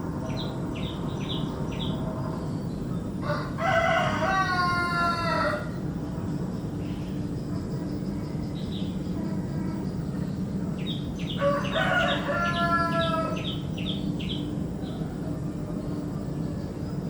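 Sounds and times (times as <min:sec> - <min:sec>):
low background hum: 0:00.0 - 0:17.0
songbirds chirping: 0:00.0 - 0:17.0
rooster crowing: 0:03.2 - 0:05.8, 0:11.3 - 0:13.6.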